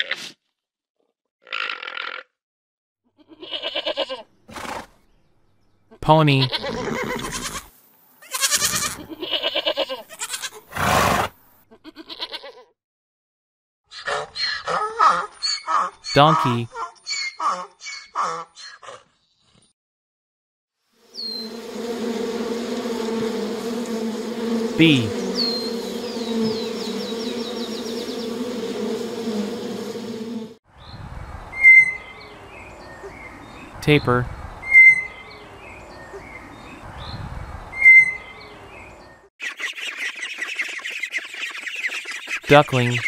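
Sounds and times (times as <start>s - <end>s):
goats bleating: 3.2s - 4.2s, 6.4s - 10.6s, 11.9s - 12.6s
honeybees buzzing: 21.0s - 30.6s, 42.5s - 43.0s.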